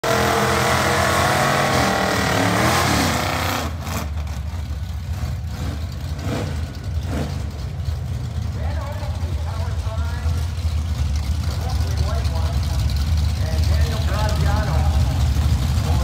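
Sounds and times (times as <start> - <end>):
engine revving during burnout: 0.0 - 4.3, 5.1 - 7.5
drag car engines idling: 0.0 - 16.0.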